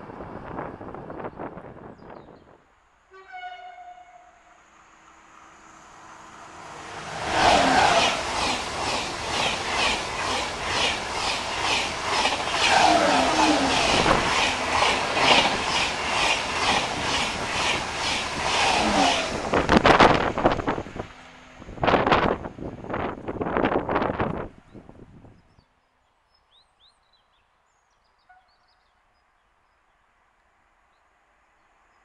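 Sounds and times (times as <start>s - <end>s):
wind buffeting microphone: 0.0s - 2.6s, 7.9s - 25.6s
high-speed train rushing past: 0.0s - 25.3s.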